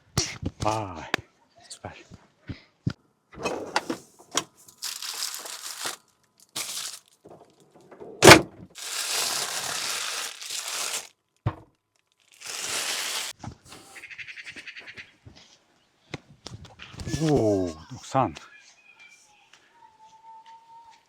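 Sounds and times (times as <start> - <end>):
crinkling rustling handling noise: 3.8 - 7.6, 8.2 - 11.2, 11.9 - 13.4.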